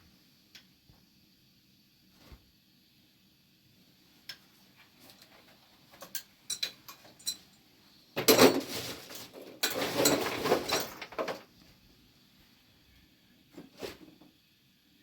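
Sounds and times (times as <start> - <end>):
light clicks and taps of tools: 4.2 - 7.6
tools scraping: 8.2 - 11.3.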